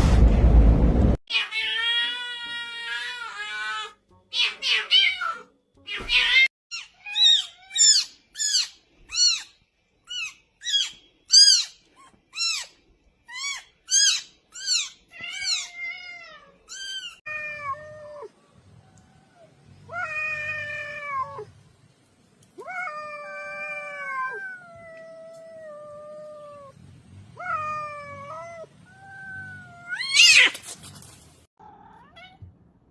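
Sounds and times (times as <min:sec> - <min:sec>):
cat meowing: 0:01.3 - 0:09.5, 0:13.3 - 0:18.3, 0:22.6 - 0:26.7, 0:27.4 - 0:30.6, 0:31.6 - 0:32.5.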